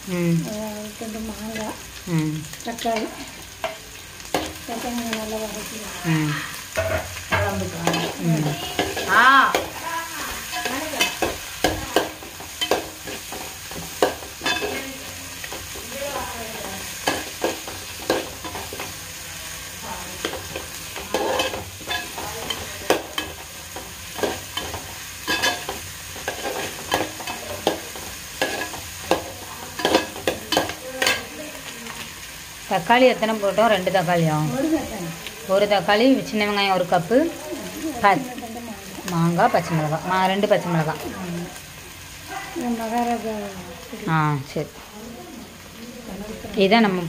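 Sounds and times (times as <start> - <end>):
vegetables sizzling in oil: 0.0 - 47.0
metal spatula scraping pot: 6.7 - 19.0, 20.2 - 23.4, 24.2 - 31.3.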